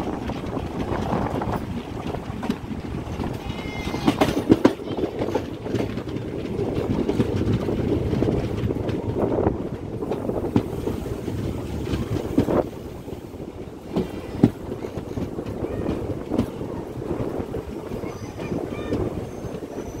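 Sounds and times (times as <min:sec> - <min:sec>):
train running gear rumble and rattle: 0:00.0 - 0:20.0
wind on microphone: 0:00.0 - 0:20.0.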